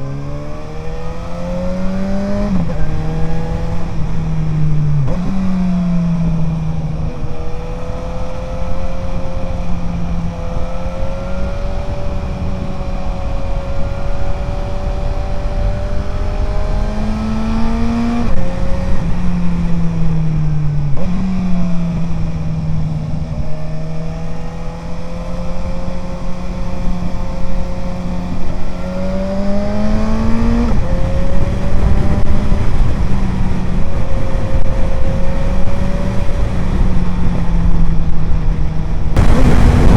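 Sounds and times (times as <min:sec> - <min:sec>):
motorcycle engine shifting gears: 0:00.0 - 0:39.9
heavy wind rush: 0:25.7 - 0:39.9.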